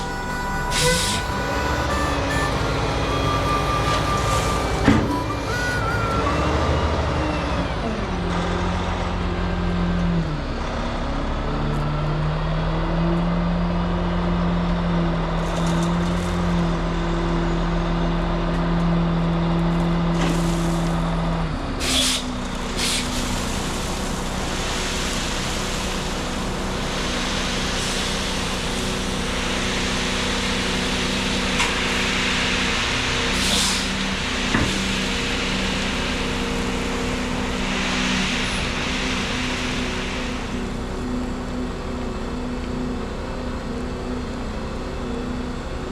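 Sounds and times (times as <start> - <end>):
air brake hisses: 0.0 - 6.4, 21.8 - 23.4, 33.3 - 34.0
heavy truck engine running: 0.0 - 45.9.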